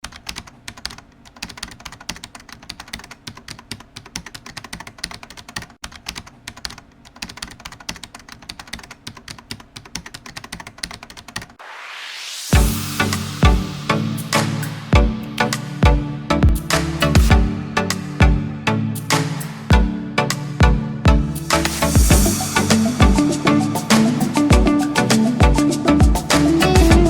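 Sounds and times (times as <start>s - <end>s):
rising electronic whoosh: 11.6s - 17.4s, 21.3s - 27.0s
music with a beat: 12.5s - 27.0s.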